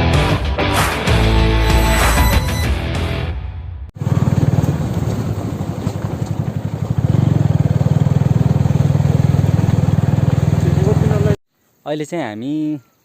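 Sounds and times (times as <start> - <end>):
music: 0.0 - 3.9.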